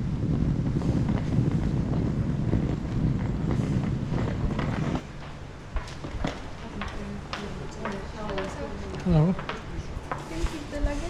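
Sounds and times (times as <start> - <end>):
low rumble: 0.0 - 5.2
wind buffeting microphone: 0.0 - 11.0.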